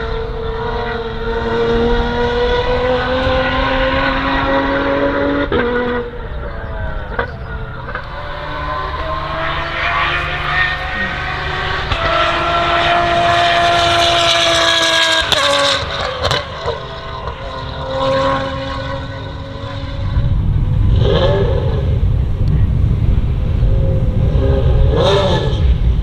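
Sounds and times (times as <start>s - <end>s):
race car engine: 0.0s - 26.0s
exhaust pop: 8.0s - 16.0s.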